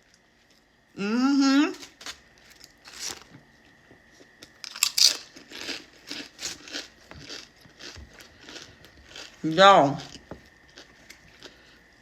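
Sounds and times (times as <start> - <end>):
crunching chips: 1.8 - 3.4, 4.4 - 12.0.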